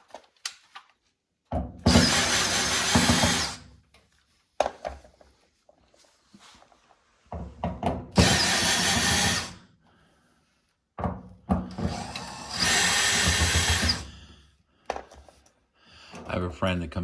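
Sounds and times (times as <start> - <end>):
power drill driving screws: 1.9 - 3.6, 8.2 - 9.6, 11.7 - 14.1.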